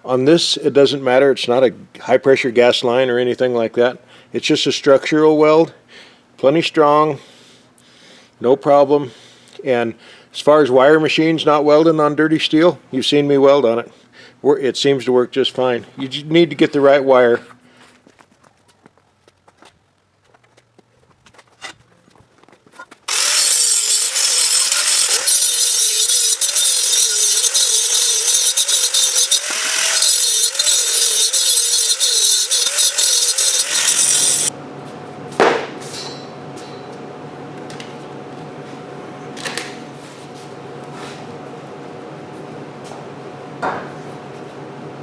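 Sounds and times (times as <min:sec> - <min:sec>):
welder arc crackling buzz: 0:23.1 - 0:34.5.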